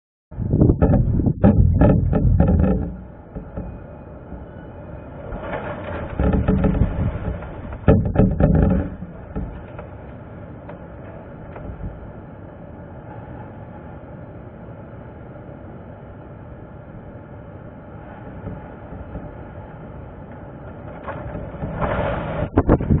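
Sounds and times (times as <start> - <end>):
wind buffeting microphone: 0.3 - 4.8, 6.0 - 10.4, 17.5 - 23.0.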